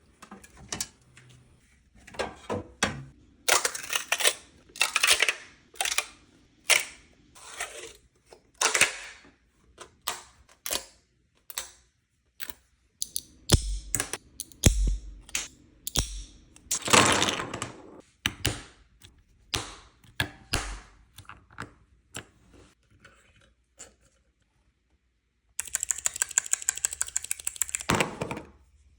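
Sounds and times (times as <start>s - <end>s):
plastic fidget toys clicking: 25.6s - 27.9s.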